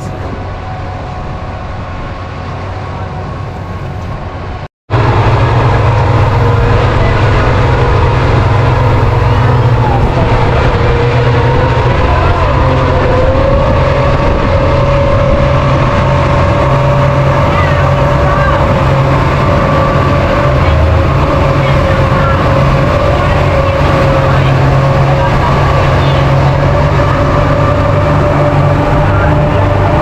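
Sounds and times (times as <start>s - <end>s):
boat engine humming and whining: 0.0s - 30.0s.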